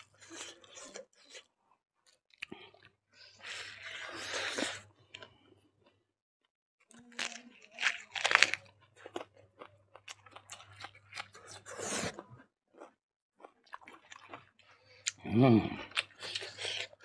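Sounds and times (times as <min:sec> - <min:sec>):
chewing with wet clicks: 0:12.2 - 0:15.2.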